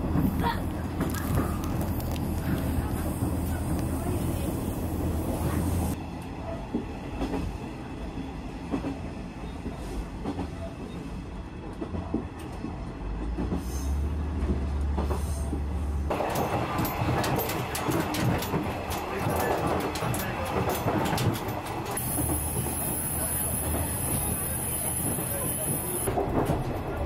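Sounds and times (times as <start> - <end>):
wheels clicking over rail joints: 14.4 - 27.0.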